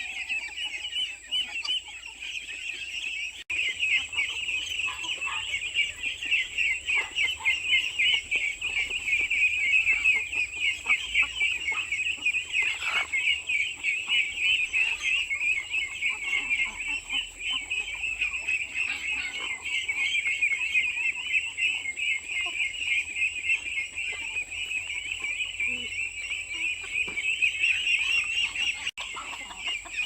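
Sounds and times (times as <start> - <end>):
chickens clucking: 0.0 - 30.0
chicks peeping: 0.0 - 30.0.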